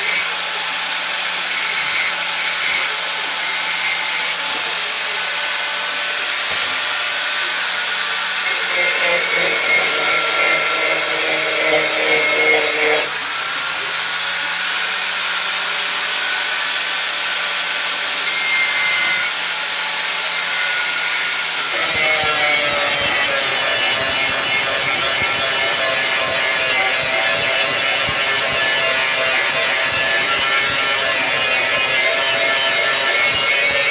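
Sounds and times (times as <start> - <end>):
metal blade grinding: 1.2 - 5.1, 6.4 - 7.1, 8.4 - 13.1, 20.3 - 33.9.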